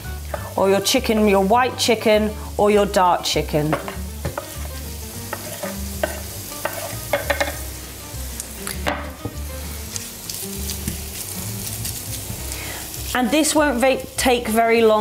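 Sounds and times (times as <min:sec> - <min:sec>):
chicken and onions sizzling in pan: 0:00.0 - 0:15.0
wooden spatula scraping and knocking: 0:03.7 - 0:07.6.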